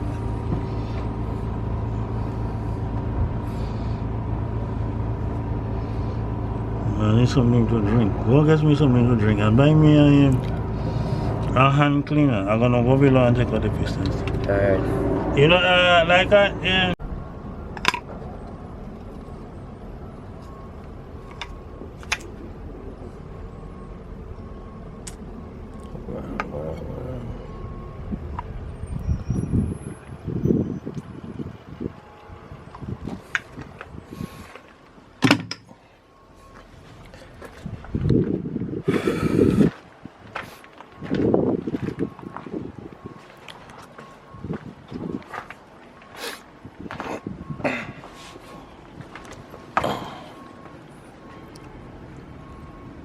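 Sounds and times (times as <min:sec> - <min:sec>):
low machine hum: 0:00.0 - 0:11.7
steady low rumble: 0:00.0 - 0:35.2, 0:36.0 - 0:53.0.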